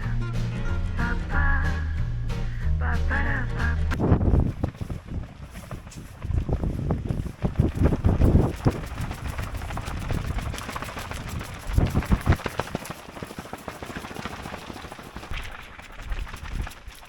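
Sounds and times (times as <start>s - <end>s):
wind buffeting microphone: 3.9s - 12.9s
crackling rustle: 4.0s - 17.0s.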